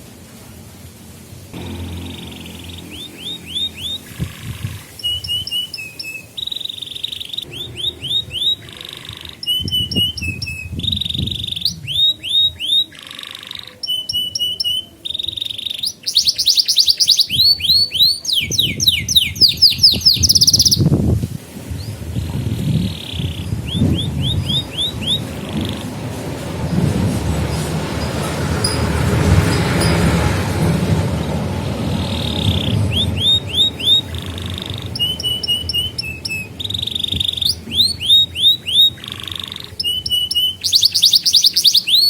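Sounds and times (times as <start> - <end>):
canary singing: 1.6 - 21.0, 21.8 - 26.6, 27.5 - 42.0
low background rumble: 7.4 - 12.0, 18.6 - 40.2.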